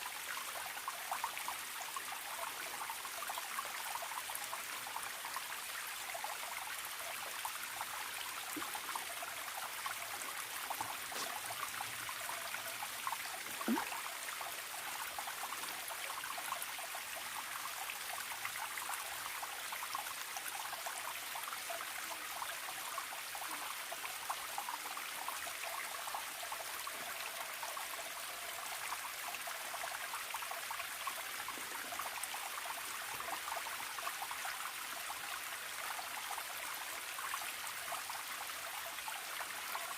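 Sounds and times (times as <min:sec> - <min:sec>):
stream trickling and gurgling: 0:00.0 - 0:39.9
water plop: 0:13.3 - 0:14.1
droplet splashes: 0:13.4 - 0:14.1.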